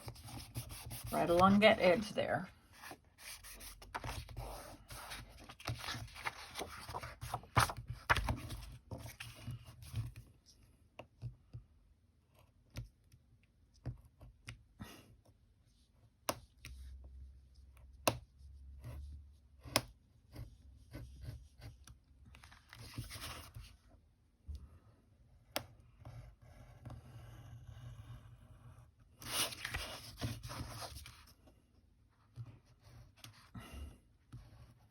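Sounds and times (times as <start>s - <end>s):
paper rustling and rubbing: 2.8s - 9.4s, 22.4s - 23.7s, 29.2s - 31.3s.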